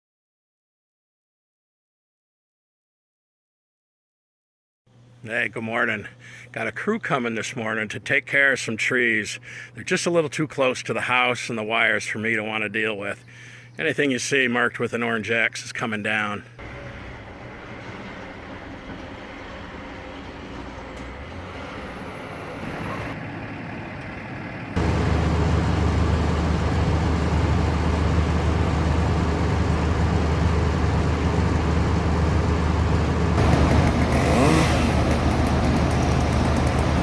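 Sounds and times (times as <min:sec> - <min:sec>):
rising whine: 0:16.6 - 0:23.3, 0:23.9 - 0:37.0
large engine running: 0:16.6 - 0:37.0.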